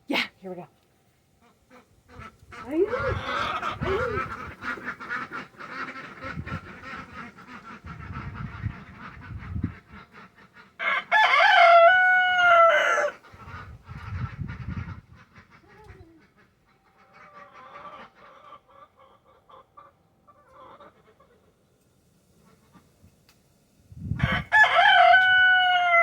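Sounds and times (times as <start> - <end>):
hens clucking: 1.4 - 21.5
rooster crowing: 10.8 - 13.2, 24.2 - 26.0.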